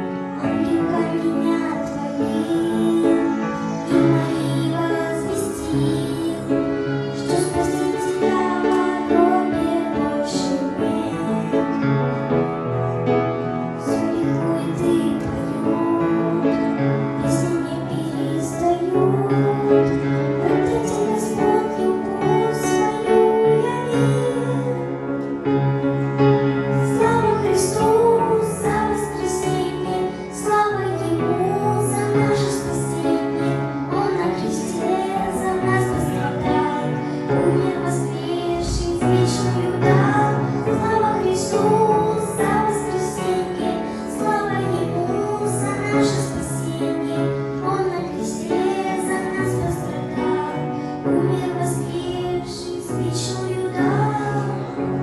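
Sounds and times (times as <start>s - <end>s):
instrumental accompaniment: 0.0s - 55.0s
high voice singing: 26.9s - 54.8s.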